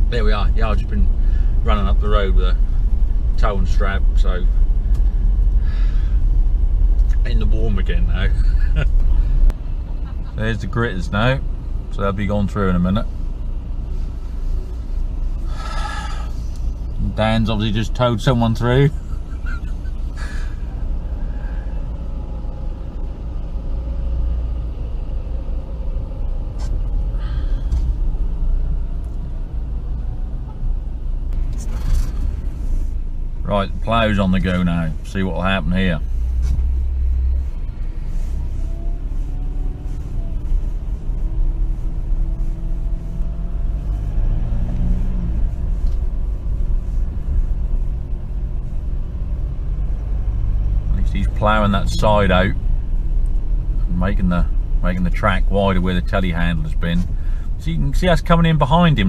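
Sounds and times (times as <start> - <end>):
engine rumble inside cab: 0.0 - 59.0.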